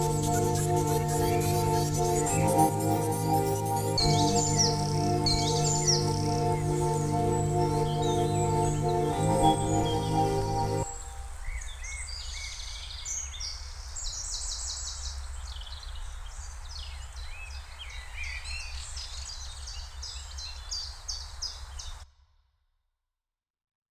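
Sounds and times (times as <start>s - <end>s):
birds chirping and trilling: 0.0s - 11.8s.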